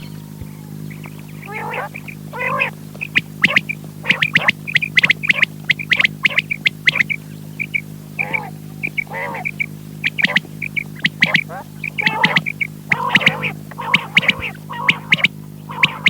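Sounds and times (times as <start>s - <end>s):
quail calling: 0.0s - 16.0s
steady electrical hum: 0.0s - 16.0s.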